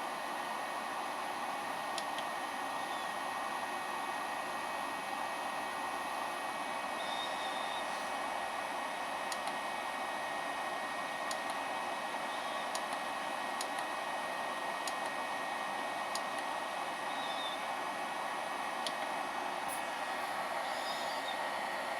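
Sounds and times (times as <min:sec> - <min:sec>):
spindle motor whining: 0:07.0 - 0:08.2.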